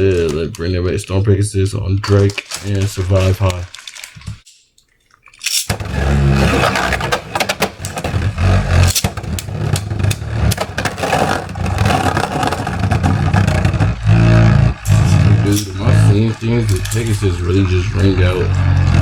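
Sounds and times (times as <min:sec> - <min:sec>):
spinning tops clashing clicks: 0:05.4 - 0:14.1, 0:14.8 - 0:18.7
spinning tops whirring: 0:05.4 - 0:19.0.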